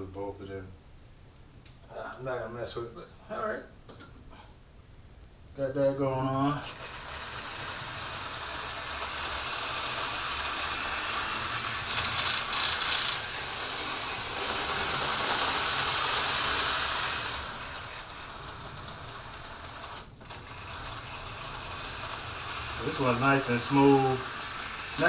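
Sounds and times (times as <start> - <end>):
slot cars whirring and rattling: 6.6 - 25.0.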